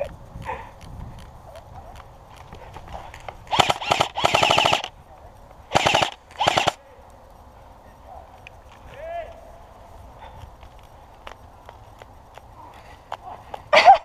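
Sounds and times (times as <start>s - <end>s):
airsoft rifle bursts: 3.5s - 5.0s, 5.7s - 6.8s.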